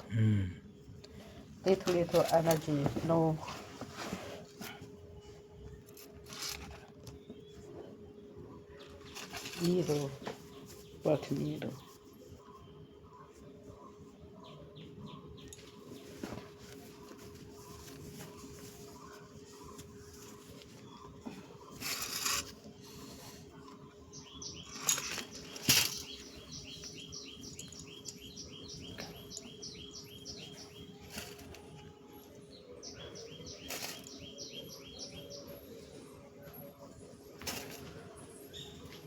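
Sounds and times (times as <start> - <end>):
steady low hum: 0.0 - 9.1
bird chirping: 5.7 - 39.0.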